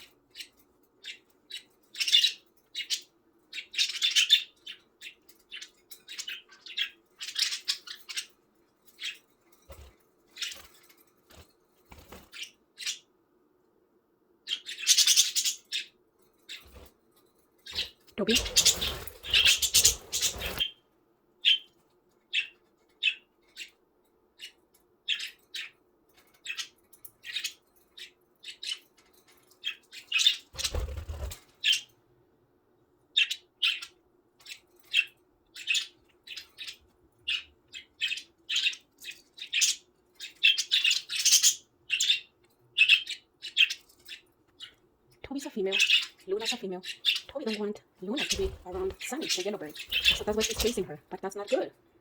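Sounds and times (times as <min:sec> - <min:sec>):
budgerigars chirping: 0:00.0 - 0:08.3, 0:14.5 - 0:16.8, 0:17.7 - 0:20.8, 0:33.2 - 0:44.8, 0:45.5 - 0:51.7.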